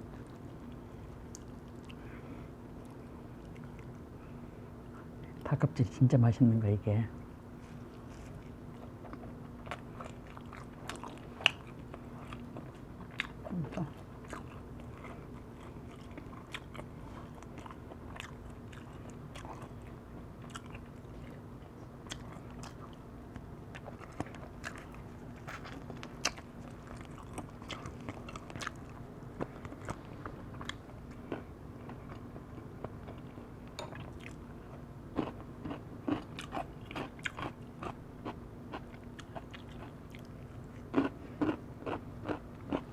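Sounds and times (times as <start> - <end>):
crunchy biting and chewing: 7.7 - 33.4, 35.1 - 42.9.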